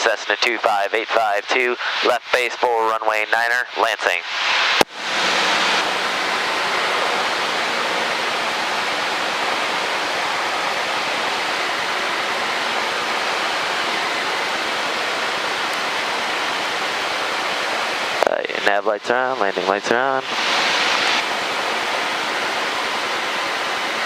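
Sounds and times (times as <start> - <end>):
airplane cabin noise: 0.0 - 24.0.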